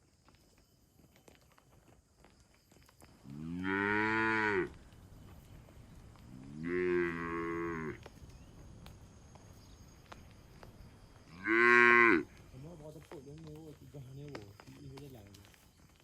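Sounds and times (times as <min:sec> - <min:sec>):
cow mooing: 0:03.3 - 0:04.8, 0:06.4 - 0:08.0, 0:11.4 - 0:12.2.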